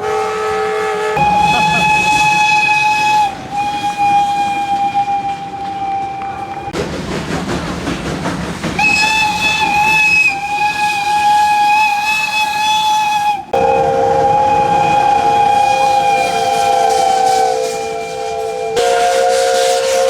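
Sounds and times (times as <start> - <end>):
steam locomotive whistle: 0.0 - 6.8, 8.8 - 20.0
steam hissing: 1.1 - 20.0
two-note whistle chord: 1.2 - 4.0.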